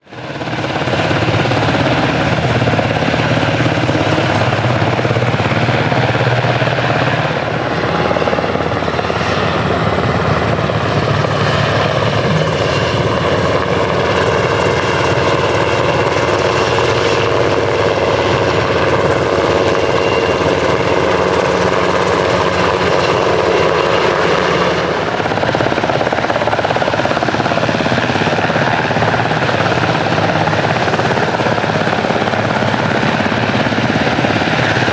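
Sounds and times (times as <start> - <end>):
helicopter rotor beating: 0.0 - 34.9
turbine engine whine: 0.0 - 34.9.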